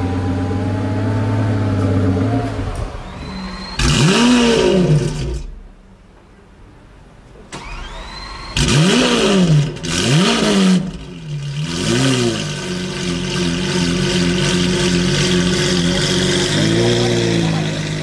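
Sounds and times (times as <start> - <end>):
car engine revving: 0.0 - 5.8, 7.6 - 18.0
car engine idling: 0.0 - 18.0
starter motor whining: 1.7 - 5.6, 7.5 - 9.7.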